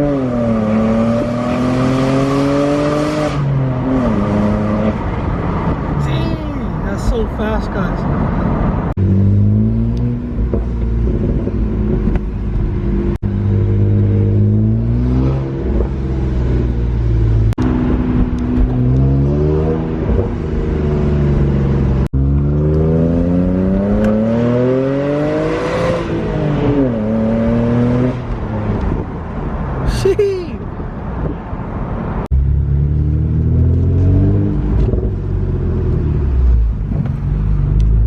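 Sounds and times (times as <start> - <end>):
car engine accelerating hard: 8.0 - 29.2.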